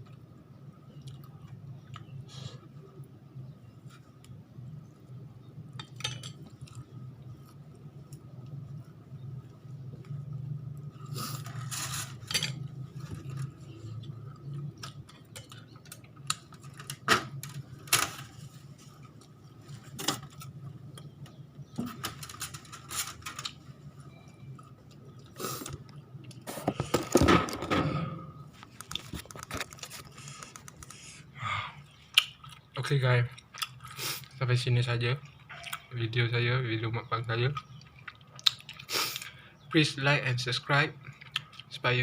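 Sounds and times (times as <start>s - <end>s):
chewing: 32.1s - 34.4s, 35.2s - 35.9s, 37.6s - 39.4s.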